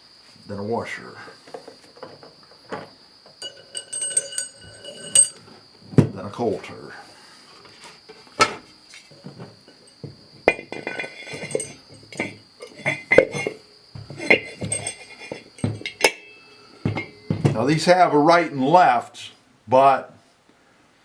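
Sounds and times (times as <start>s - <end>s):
metal parts clinking: 3.4s - 5.4s, 10.5s - 13.6s, 14.2s - 17.3s.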